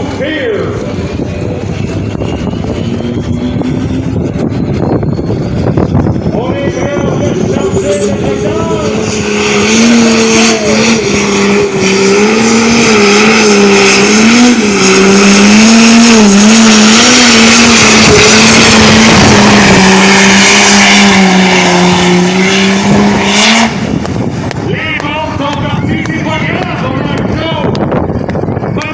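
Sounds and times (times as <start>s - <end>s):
tractor engine at high revs: 0.0s - 28.9s.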